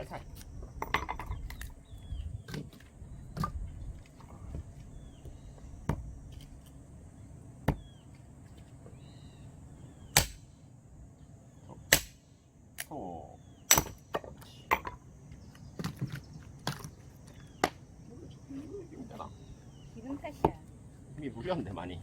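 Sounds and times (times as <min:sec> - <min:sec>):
axe chopping firewood: 0:10.2 - 0:10.5, 0:11.8 - 0:12.2, 0:13.7 - 0:14.9.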